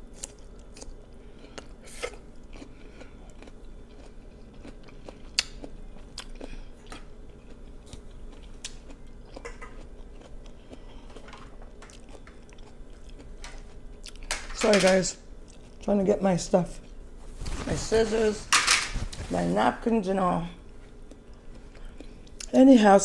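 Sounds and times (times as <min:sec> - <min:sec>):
person chewing crisp cucumber: 0:00.0 - 0:14.3, 0:15.4 - 0:15.9, 0:20.8 - 0:22.5.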